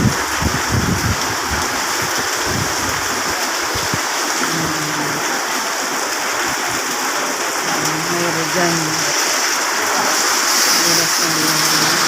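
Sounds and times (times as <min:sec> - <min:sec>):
wind buffeting microphone: 0:00.0 - 0:04.0
heavy rain pouring: 0:00.0 - 0:12.0.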